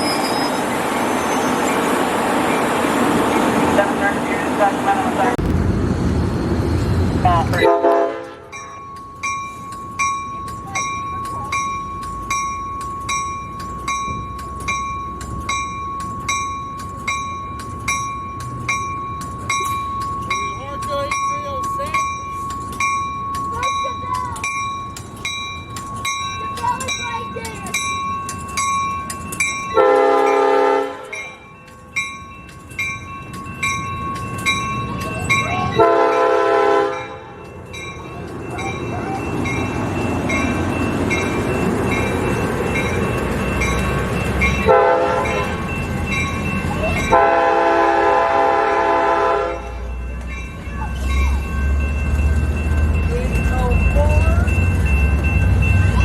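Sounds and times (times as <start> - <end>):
locomotive bell ringing: 0.0 - 5.4, 6.1 - 56.0
train rumbling: 0.0 - 56.0
train horn blasts: 7.6 - 8.6, 29.8 - 31.1, 35.8 - 37.3, 44.7 - 45.6, 47.1 - 49.8.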